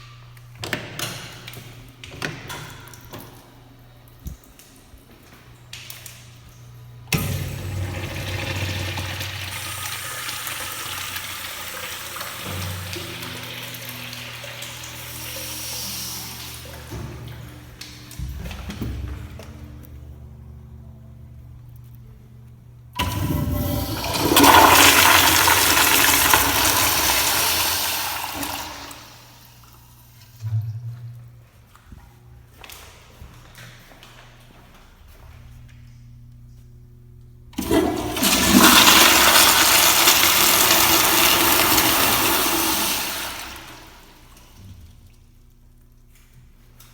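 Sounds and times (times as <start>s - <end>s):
toilet flushing water rush: 7.0s - 19.7s, 23.0s - 30.5s, 37.6s - 44.9s.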